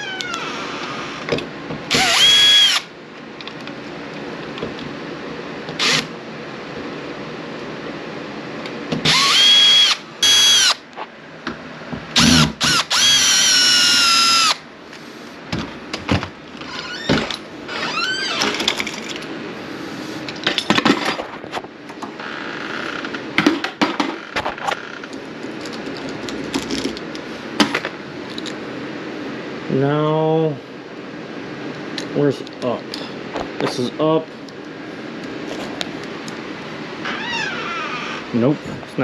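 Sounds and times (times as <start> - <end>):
power drill whining: 0.0 - 1.3, 1.9 - 2.9, 5.8 - 6.1, 9.0 - 10.8, 12.2 - 14.6.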